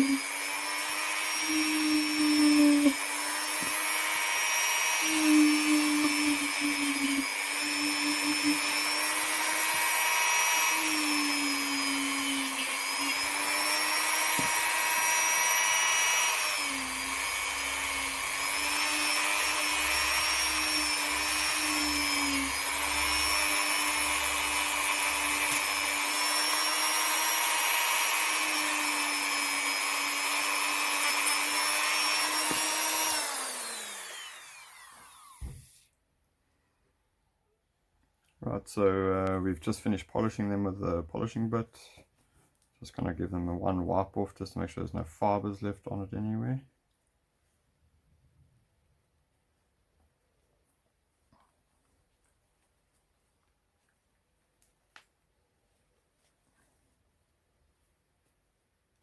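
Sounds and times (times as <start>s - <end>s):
rotary tool motor whining: 0.0s - 35.8s.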